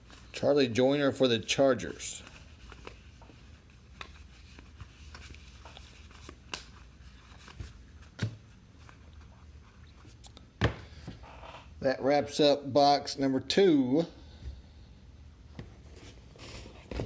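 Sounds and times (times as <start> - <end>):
cards and wrappers rustling: 0.0 - 10.3
low room hum: 0.0 - 17.0.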